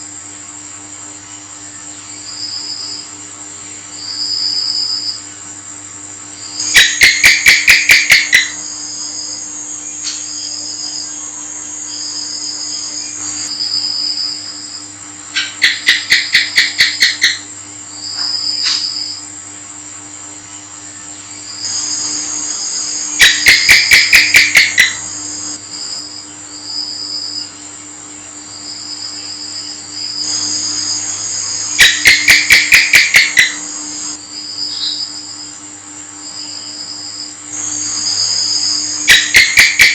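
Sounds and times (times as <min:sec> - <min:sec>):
gecko chirping: 0:06.5 - 0:09.4, 0:15.4 - 0:17.4, 0:21.6 - 0:26.0, 0:28.6 - 0:35.2, 0:37.6 - 0:39.9
high-pitched trill and drone: 0:06.5 - 0:14.4, 0:21.6 - 0:26.0, 0:30.2 - 0:35.1, 0:37.6 - 0:39.9.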